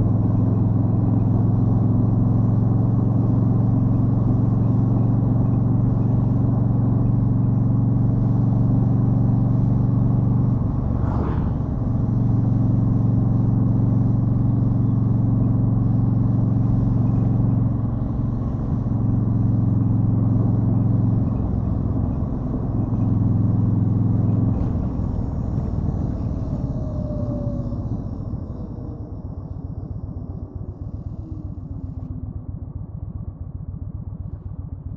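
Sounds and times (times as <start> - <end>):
rushing noise: 10.5 - 13.6.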